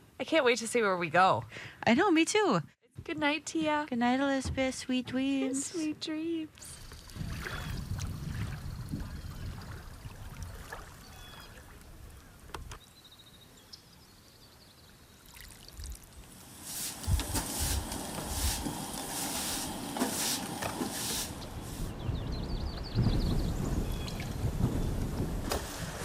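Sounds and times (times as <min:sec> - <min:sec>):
water sloshing and splashing: 0:06.9 - 0:12.1.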